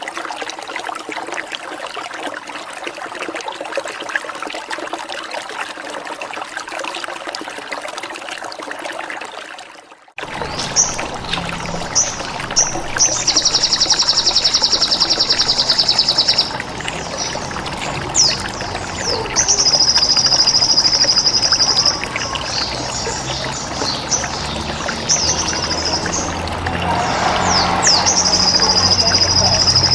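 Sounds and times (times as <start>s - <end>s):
trickle of running water: 0.0s - 29.9s
high falling bird chirps: 10.2s - 29.9s.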